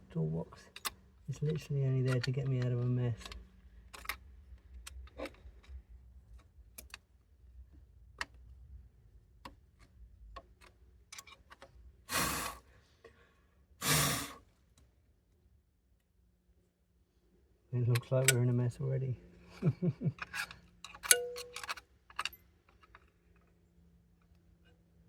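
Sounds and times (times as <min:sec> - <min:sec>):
hand tools tapping on metal: 0:20.1 - 0:23.0.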